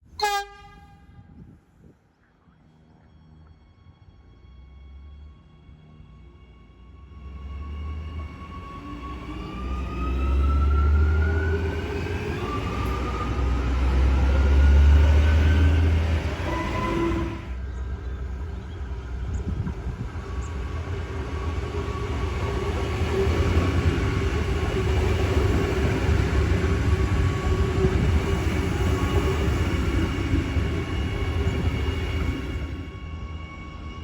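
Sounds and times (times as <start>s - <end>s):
train wheels rumbling on rail: 7.3s - 34.0s.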